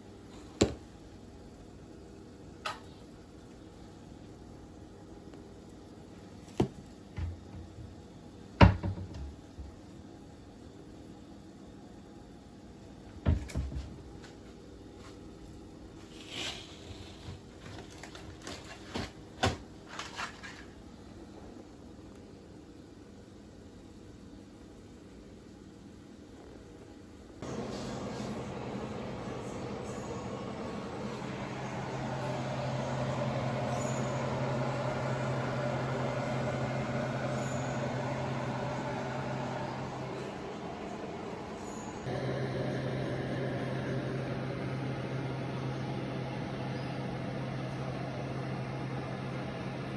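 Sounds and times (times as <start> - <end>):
low hum: 27.4 - 49.9.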